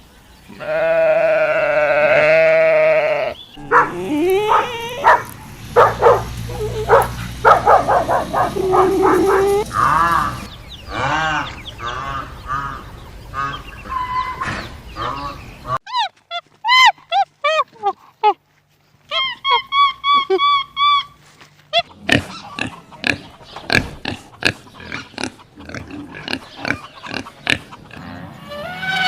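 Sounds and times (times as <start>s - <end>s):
livestock bleating: 0.5s - 5.2s.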